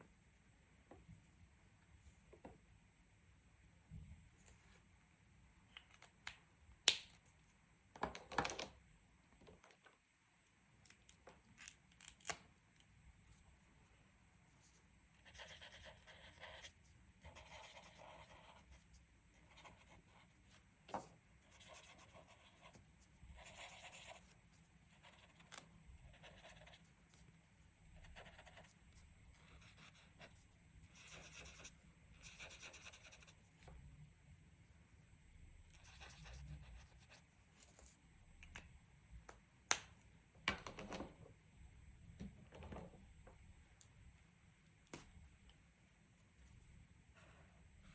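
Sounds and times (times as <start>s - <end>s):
colouring pencil scratching paper: 15.2s - 20.3s, 21.4s - 27.0s, 28.0s - 33.4s.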